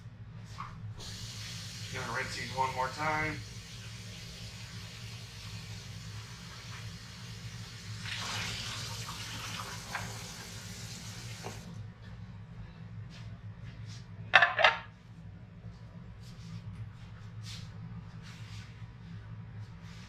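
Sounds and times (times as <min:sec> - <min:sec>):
tap running into a sink: 0:08.0 - 0:10.5, 0:11.3 - 0:11.7.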